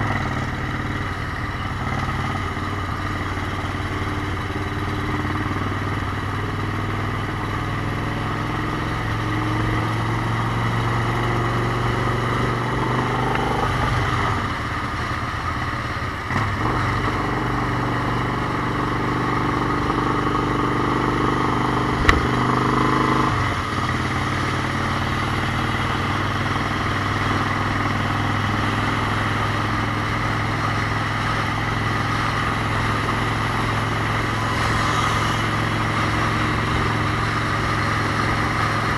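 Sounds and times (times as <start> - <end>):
motorcycle engine running: 0.0 - 38.9
sharp click: 22.0 - 22.5.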